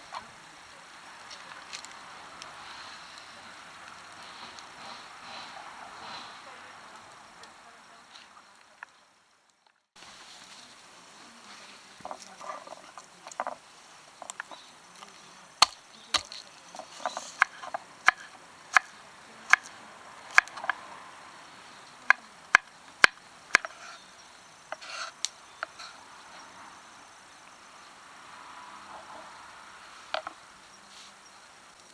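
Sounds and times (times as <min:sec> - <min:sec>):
knife chopping on wooden board: 0:15.6 - 0:18.9, 0:20.3 - 0:20.8, 0:22.5 - 0:23.8.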